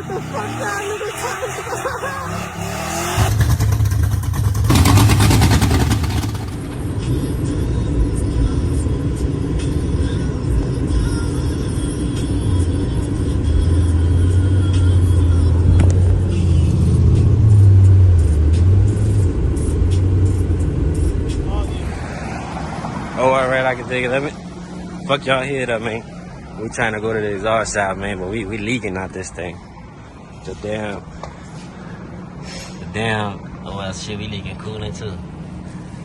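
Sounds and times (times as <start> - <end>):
loud car engine running: 0.0 - 10.8.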